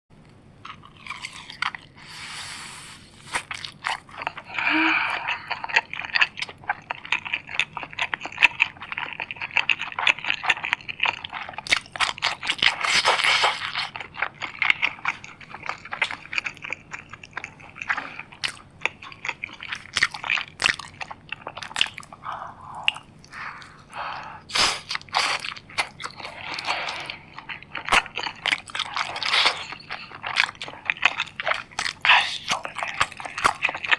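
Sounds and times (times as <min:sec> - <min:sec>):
crunchy food chewing: 0:00.6 - 0:02.2, 0:03.2 - 0:33.9.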